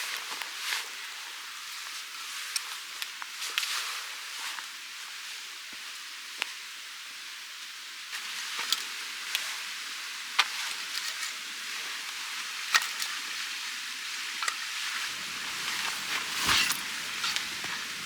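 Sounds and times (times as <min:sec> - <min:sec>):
wood fire crackling: 0:15.1 - 0:18.0.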